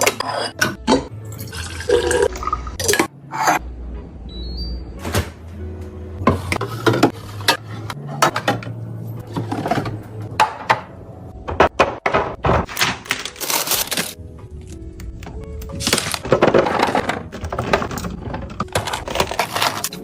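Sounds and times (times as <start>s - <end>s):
containers and dishes clattering: 6.2s - 10.9s, 15.9s - 20.0s.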